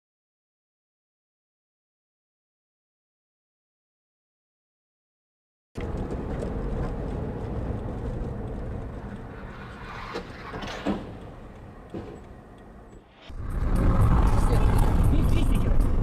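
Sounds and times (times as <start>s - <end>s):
car engine and road noise: 5.8s - 16.0s.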